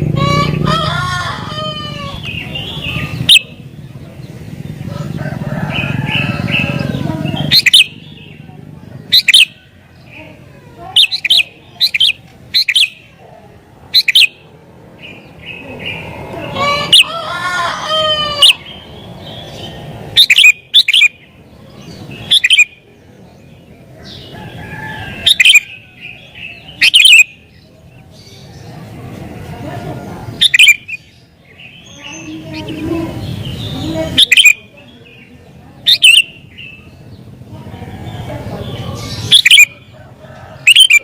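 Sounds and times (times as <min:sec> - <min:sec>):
bird chirping sharply: 0:13.9 - 0:14.4, 0:18.4 - 0:22.8, 0:35.9 - 0:36.9.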